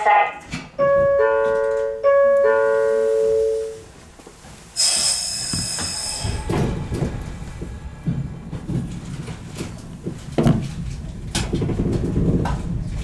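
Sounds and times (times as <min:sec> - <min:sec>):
train rumbling: 0:00.0 - 0:13.0
compressed air hiss: 0:04.7 - 0:07.7.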